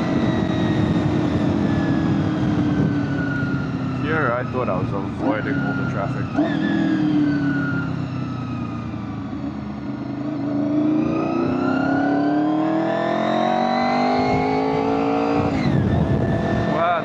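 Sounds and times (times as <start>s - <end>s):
wind noise on microphone: 0.0s - 4.0s, 13.9s - 17.0s
motorcycle engine accelerating: 0.0s - 17.0s.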